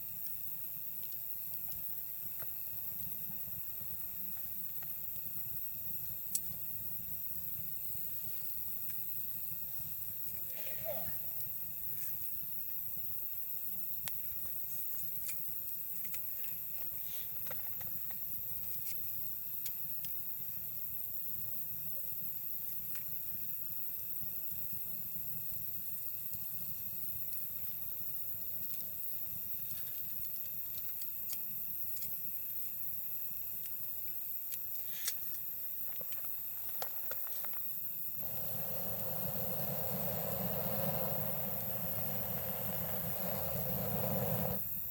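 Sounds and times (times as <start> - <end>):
insects chirring: 0.0 - 44.9
campfire crackling and popping: 38.2 - 44.7.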